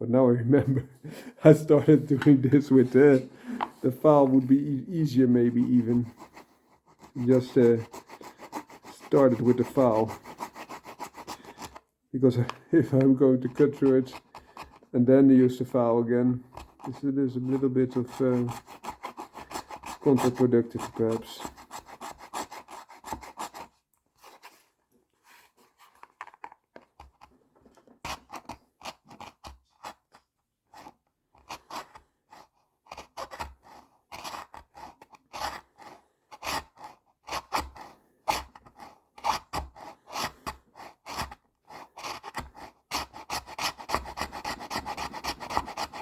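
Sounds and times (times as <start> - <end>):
hand file rasping leather: 1.6 - 24.6, 27.9 - 46.0.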